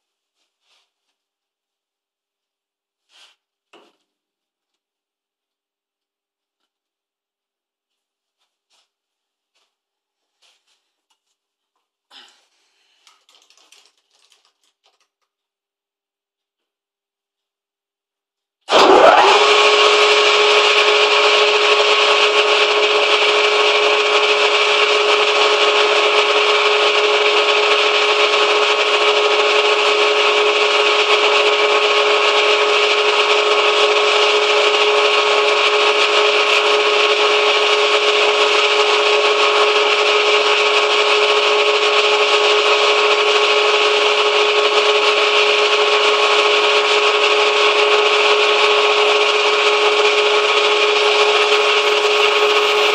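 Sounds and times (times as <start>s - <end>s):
metal lathe whine: 18.7s - 52.9s.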